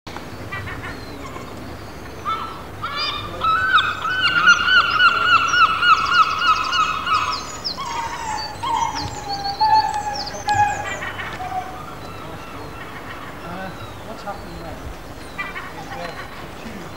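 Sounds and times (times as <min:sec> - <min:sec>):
bird calling: 0:00.1 - 0:16.9.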